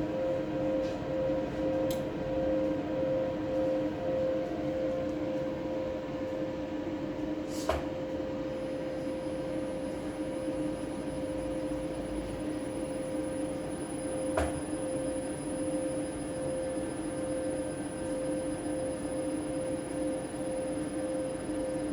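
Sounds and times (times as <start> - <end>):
faint high whine: 8.5 - 21.9.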